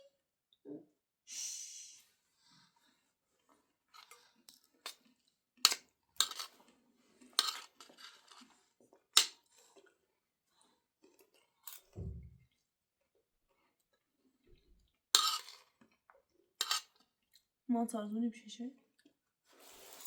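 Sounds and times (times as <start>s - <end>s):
spoons and dishes clinking: 5.7s - 6.6s, 7.4s - 8.3s, 15.2s - 15.7s, 16.6s - 17.0s
low thump: 12.0s - 12.4s.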